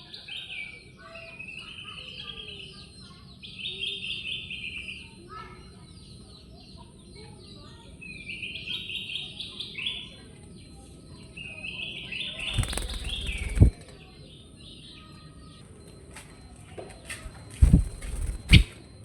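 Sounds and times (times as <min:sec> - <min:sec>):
bulbul singing rapid chirps: 0:12.4 - 0:13.8, 0:17.2 - 0:18.7
thumps: 0:17.2 - 0:18.7.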